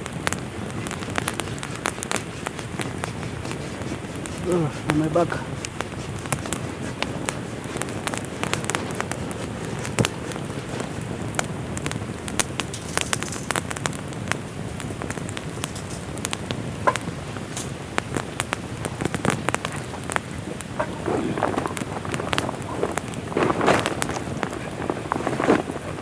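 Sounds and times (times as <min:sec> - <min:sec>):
campfire crackling and popping: 0:00.0 - 0:26.0
steady rain falling: 0:00.0 - 0:26.0.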